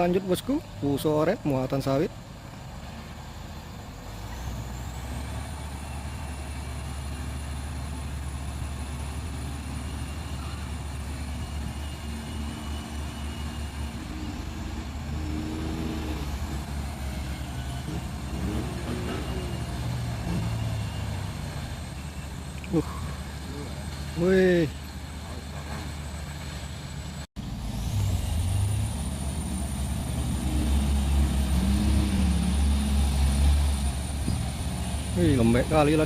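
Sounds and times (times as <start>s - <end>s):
truck diesel engine under load: 0.0s - 36.0s.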